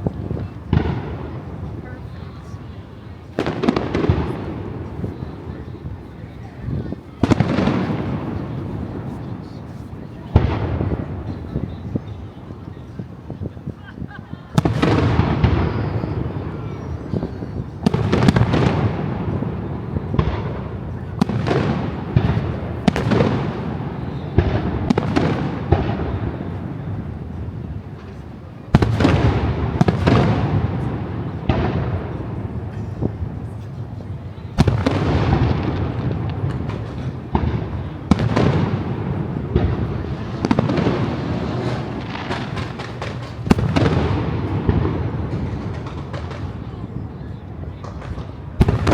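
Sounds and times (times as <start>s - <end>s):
fireworks bangs: 0.0s - 48.9s
fireworks crackling: 0.0s - 48.9s.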